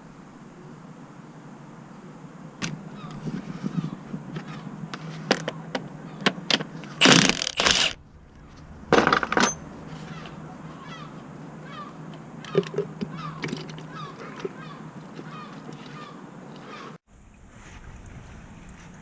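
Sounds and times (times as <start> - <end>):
metal tools clinking: 8.9 - 10.4.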